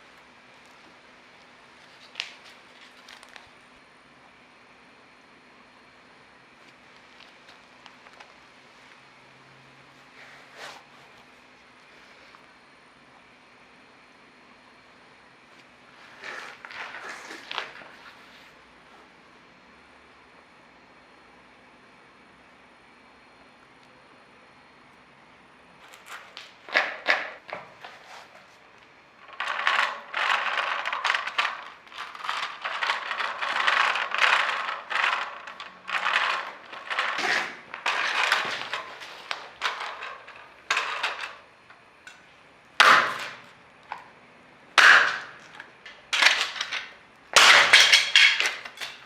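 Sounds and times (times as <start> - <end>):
plastic toy crunching underfoot: 29.2 - 41.2.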